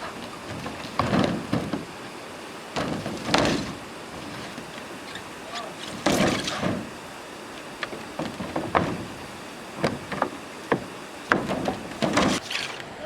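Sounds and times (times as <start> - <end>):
wooden pieces knocking: 0.0 - 2.1, 2.7 - 5.0, 7.7 - 12.4.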